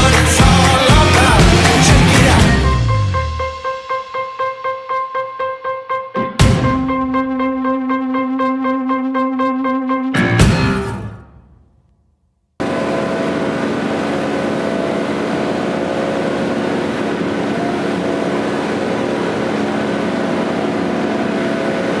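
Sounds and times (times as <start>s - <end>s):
music: 0.0s - 11.8s
machine engine humming: 12.6s - 22.0s.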